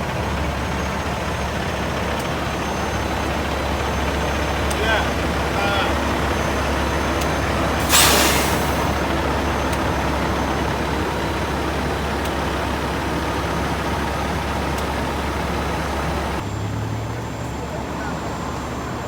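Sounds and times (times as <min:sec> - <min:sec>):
truck engine rumbling: 0:00.0 - 0:19.0
air brakes hissing: 0:02.3 - 0:12.0.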